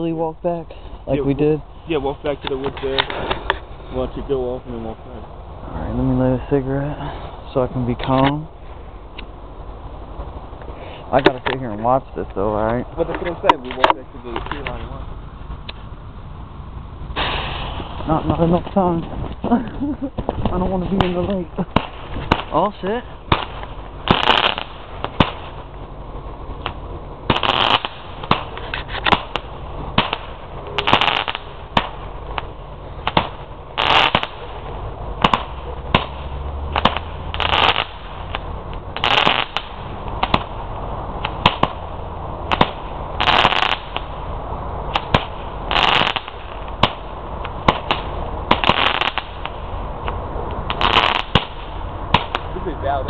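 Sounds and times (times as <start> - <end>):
firework launch pops: 17.1 - 19.5, 20.1 - 22.7, 23.3 - 25.8, 26.5 - 40.6, 41.2 - 41.9, 42.5 - 44.2, 44.9 - 52.6
firework shells bursting: 17.1 - 52.7.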